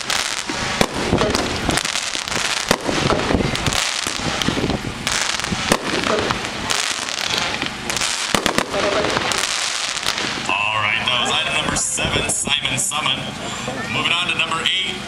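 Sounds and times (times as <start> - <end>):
firework cake shots and pops: 0.0 - 10.5.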